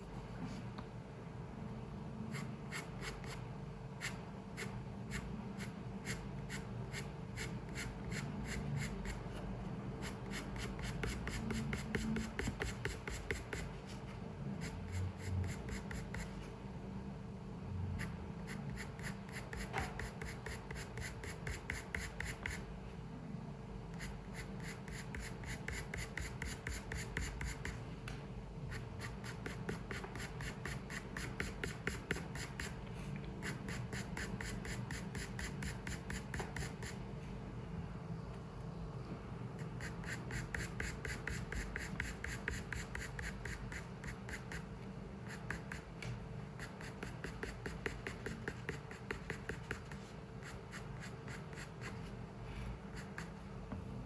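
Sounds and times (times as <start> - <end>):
faint steady hum: 0.0 - 54.0
pencil scratching on paper: 2.3 - 3.4, 4.0 - 9.4, 10.0 - 16.5, 17.9 - 22.7, 23.9 - 27.8, 28.7 - 32.8, 33.4 - 37.0, 39.6 - 45.9, 46.5 - 52.1, 52.8 - 53.5.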